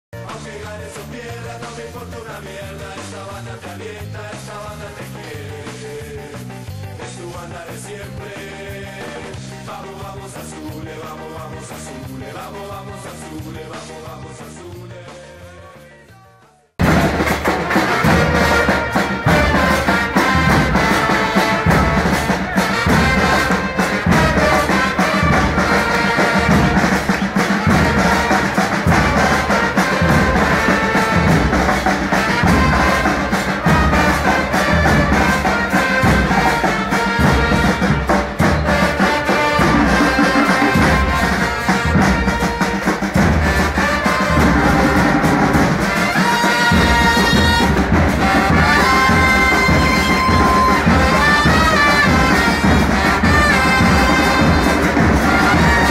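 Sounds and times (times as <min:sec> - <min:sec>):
brass band playing a chant tune: 0:00.2 - 0:16.1, 0:16.8 - 0:55.9
bass drum beat: 0:16.8 - 0:55.9.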